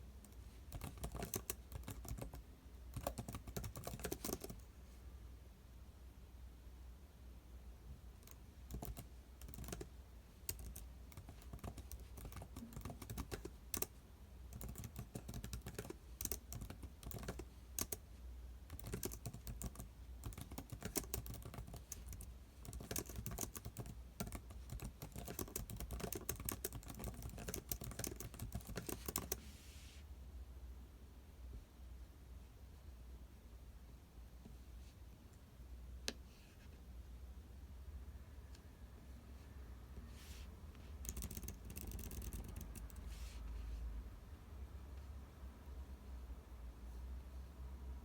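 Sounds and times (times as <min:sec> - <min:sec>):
typing on computer keyboard: 0:00.2 - 0:04.6, 0:08.2 - 0:18.0, 0:18.7 - 0:29.4, 0:41.0 - 0:43.1.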